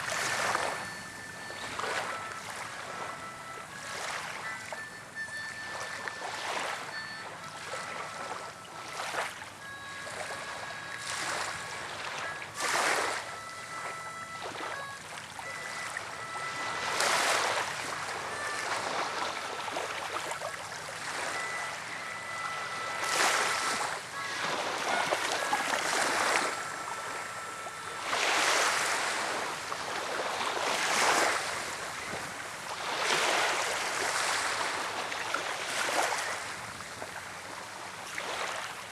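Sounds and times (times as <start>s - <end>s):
faint high tones: 20.3s - 30.2s.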